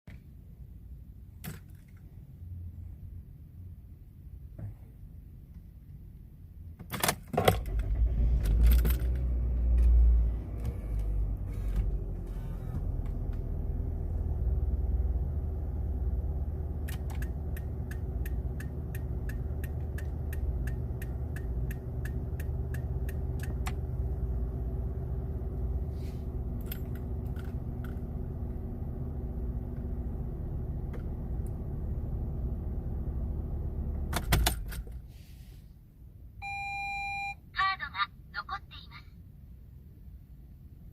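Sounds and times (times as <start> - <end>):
car engine starting and idling: 5.4 - 37.3.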